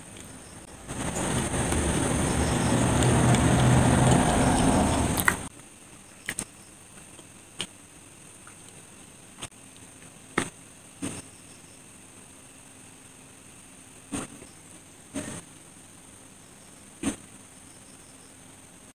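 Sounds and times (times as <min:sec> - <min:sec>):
close chewing: 0:00.0 - 0:05.5.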